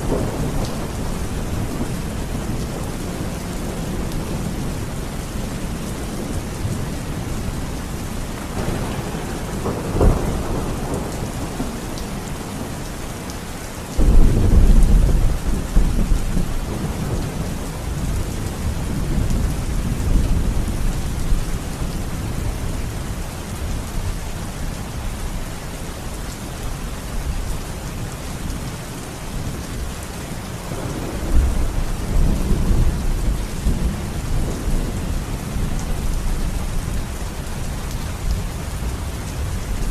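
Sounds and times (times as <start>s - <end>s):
rolling thunder: 0.0s - 4.8s, 8.5s - 12.8s, 14.0s - 23.0s, 30.6s - 37.6s
steady rain falling: 0.0s - 39.9s.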